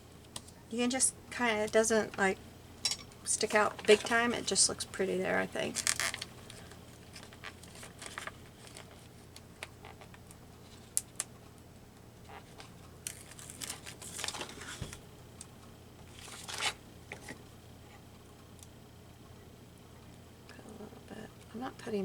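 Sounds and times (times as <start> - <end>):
paper rustling and crinkling: 5.6 - 11.2, 12.3 - 15.0, 16.1 - 17.4.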